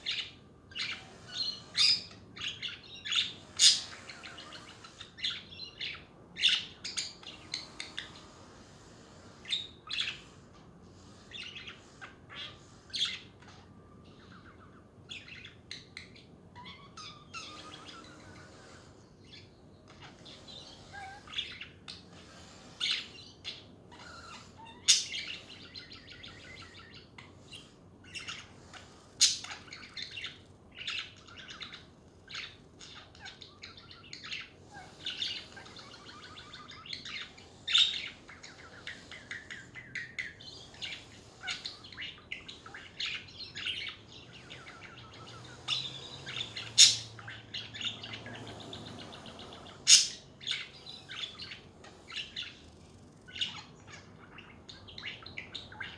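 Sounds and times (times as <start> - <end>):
budgies chattering and warbling: 0.0 - 55.9
sharp loud bird chirps: 44.6 - 48.0, 49.8 - 50.8.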